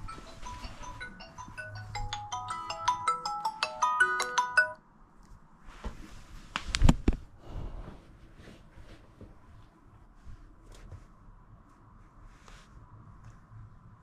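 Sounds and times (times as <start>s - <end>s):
smartphone alarm marimba melody: 0.0s - 4.8s.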